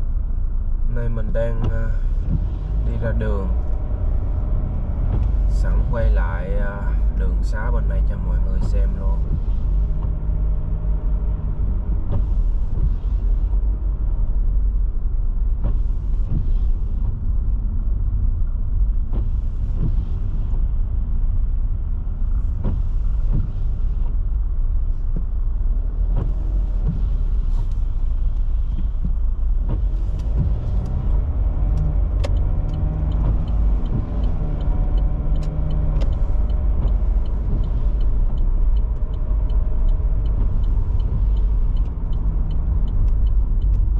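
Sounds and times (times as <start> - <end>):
road and engine rumble: 0.0 - 43.9
tyre hiss on wet road: 26.3 - 28.5.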